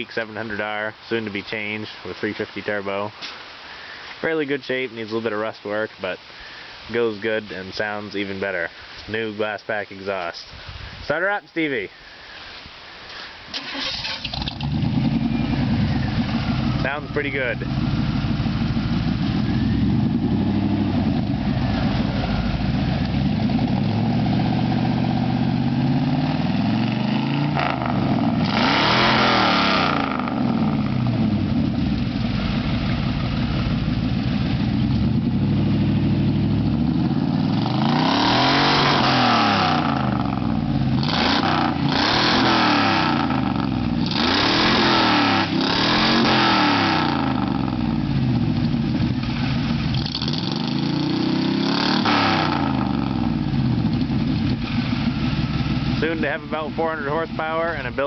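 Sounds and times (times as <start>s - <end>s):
loud engine idling and revving: 13.9s - 58.0s.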